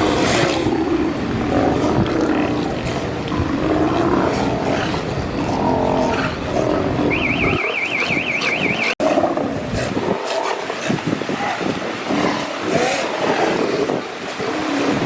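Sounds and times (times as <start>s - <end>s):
sea lions bellowing: 0.0s - 15.0s
high warbling tone: 7.1s - 9.0s.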